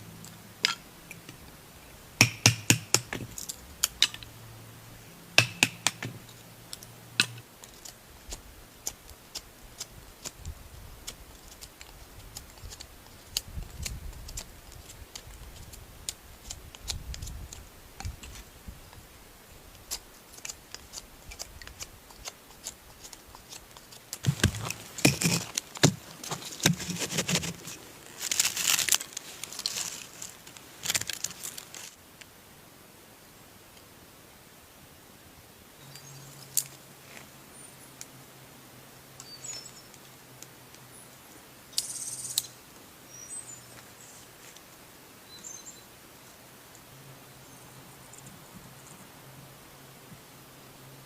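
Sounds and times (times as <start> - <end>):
rustling: 2.8 - 32.0
handling clicks and taps: 5.4 - 8.0, 20.4 - 27.8
crinkling: 6.0 - 18.5, 19.7 - 32.0.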